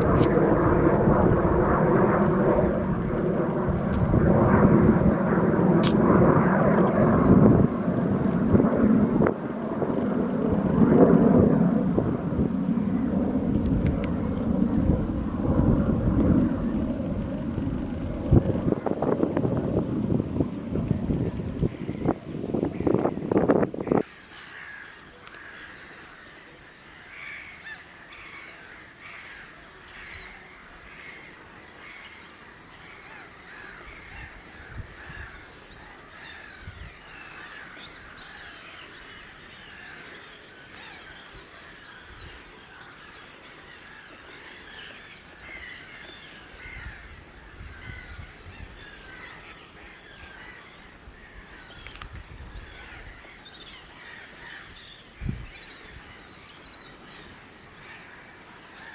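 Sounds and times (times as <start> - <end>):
low rumbles: 0.0 - 24.0
wetland birds chirping: 16.4 - 26.0.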